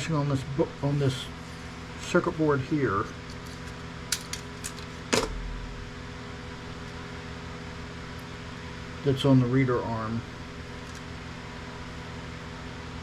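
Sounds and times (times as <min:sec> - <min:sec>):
fan-like hum: 0:00.0 - 0:13.0
loud knock: 0:05.1 - 0:06.0.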